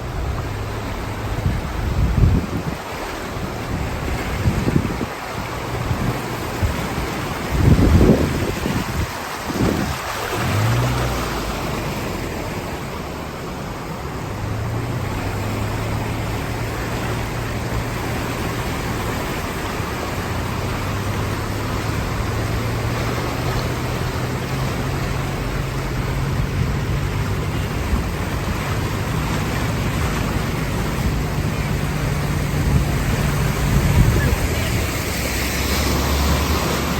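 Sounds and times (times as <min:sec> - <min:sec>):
heavy rain hissing: 0:05.4 - 0:36.9.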